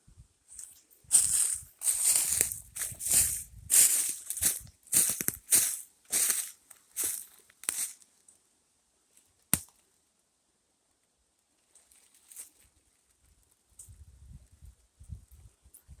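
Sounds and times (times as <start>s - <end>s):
footsteps crunching dry leaves: 0.5s - 8.0s.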